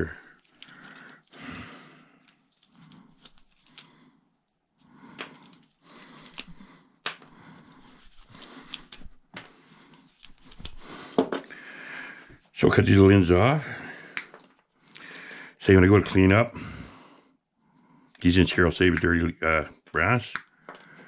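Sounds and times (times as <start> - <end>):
metallic clicks and clinks: 0.0 - 4.0, 5.2 - 7.3, 9.9 - 11.5
rustling and scraping: 7.4 - 11.4.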